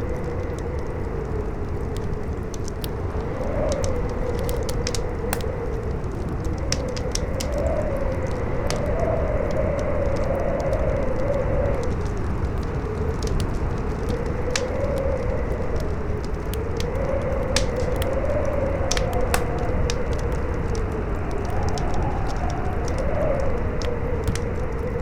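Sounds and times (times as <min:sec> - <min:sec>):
campfire crackling and popping: 0:00.0 - 0:25.0
strong wind howling: 0:00.0 - 0:25.0.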